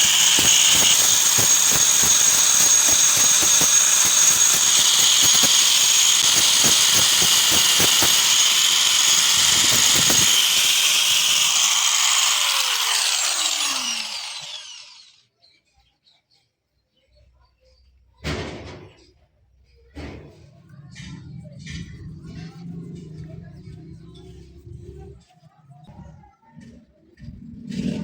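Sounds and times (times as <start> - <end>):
power tool running: 0.0 - 15.2.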